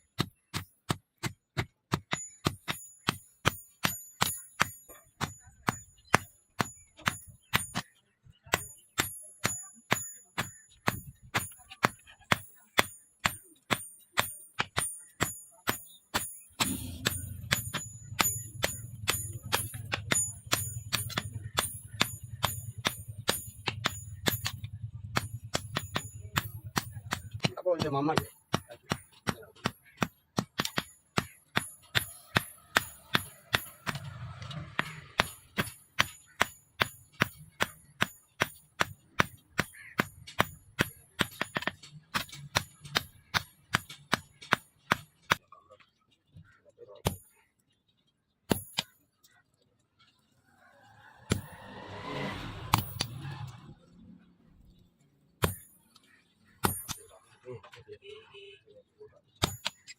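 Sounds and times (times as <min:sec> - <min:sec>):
hammer striking steel on anvil: 0:01.6 - 0:07.9, 0:08.5 - 0:45.4, 0:48.5 - 0:49.0, 0:51.3 - 0:53.6, 0:55.4 - 0:56.0, 0:56.6 - 0:57.2, 0:59.4 - 0:59.9.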